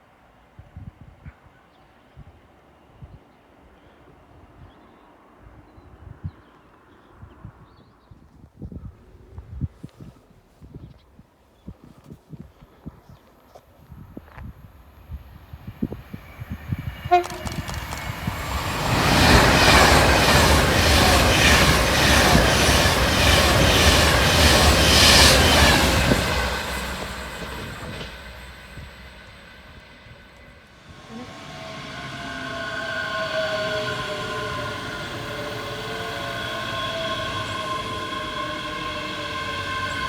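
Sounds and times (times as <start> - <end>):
train high whine: 13.9 - 40.0
train passing at speed: 14.1 - 40.0
train horn note: 16.8 - 18.4, 30.8 - 40.0.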